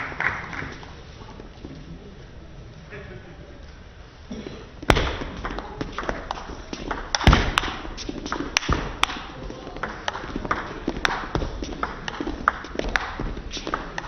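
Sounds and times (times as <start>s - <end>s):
loud thud: 4.9s - 5.4s, 7.2s - 7.7s.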